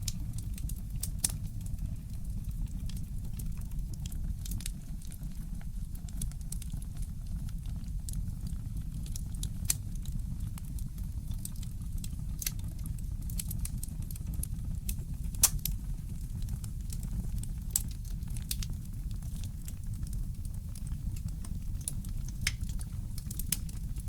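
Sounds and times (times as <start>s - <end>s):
fireplace crackling and popping: 0.0s - 24.0s
steady low rumble: 15.1s - 24.0s.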